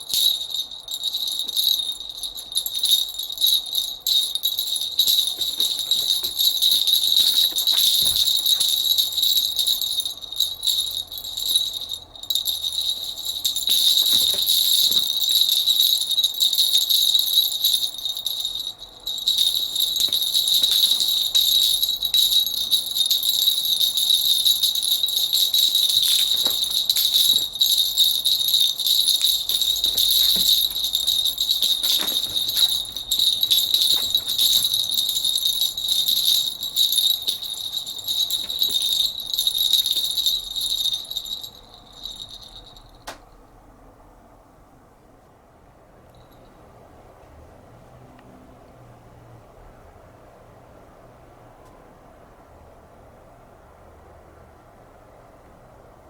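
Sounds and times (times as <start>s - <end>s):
small bells jingling: 0.0s - 43.2s.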